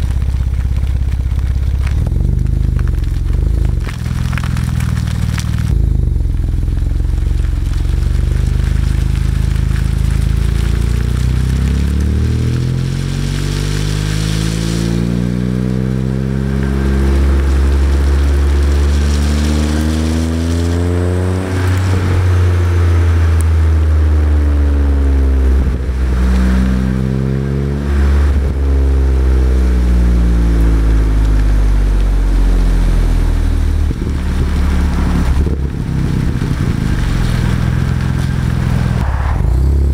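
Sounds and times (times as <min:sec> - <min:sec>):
car exhaust accelerating: 0:00.0 - 0:39.9
wind noise on microphone: 0:14.4 - 0:39.9.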